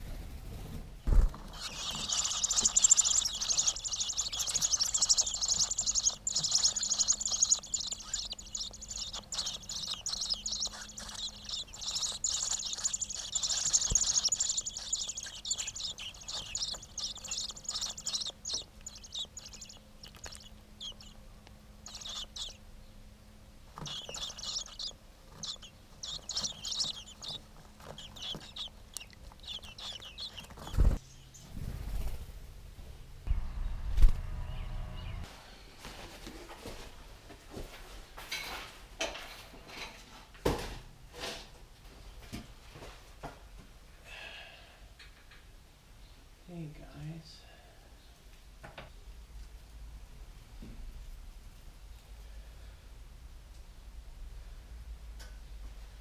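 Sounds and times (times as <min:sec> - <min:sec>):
nestling birds chirping: 0:00.0 - 0:32.2.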